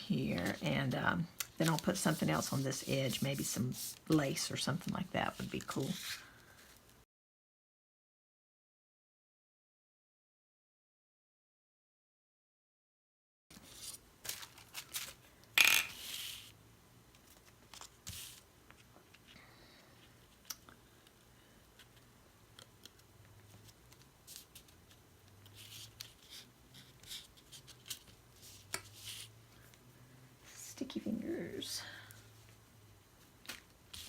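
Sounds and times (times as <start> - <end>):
paper rustling: 1.6 - 6.9, 13.5 - 15.2.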